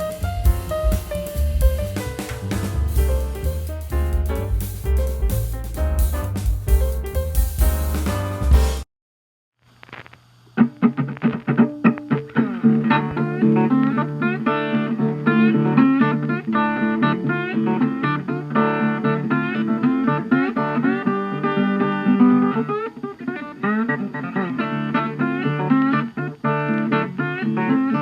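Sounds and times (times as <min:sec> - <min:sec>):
plucked guitar notes: 0:10.6 - 0:28.0.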